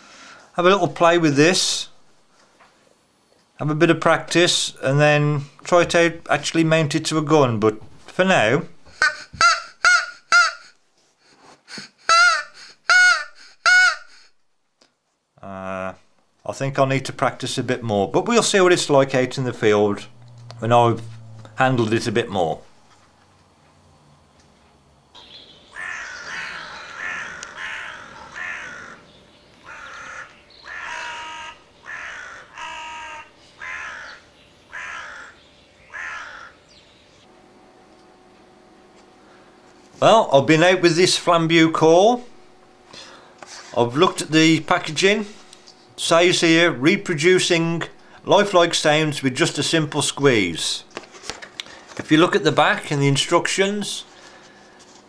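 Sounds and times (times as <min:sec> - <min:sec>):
crow call caws: 0:11.7 - 0:14.3, 0:25.7 - 0:36.8.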